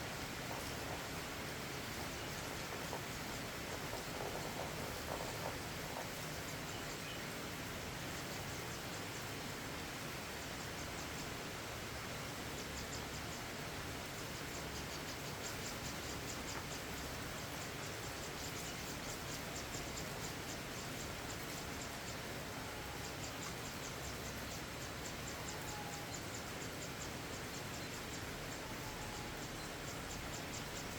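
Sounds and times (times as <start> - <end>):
insect chirping: 0.0 - 7.2
rain hissing: 0.0 - 30.9.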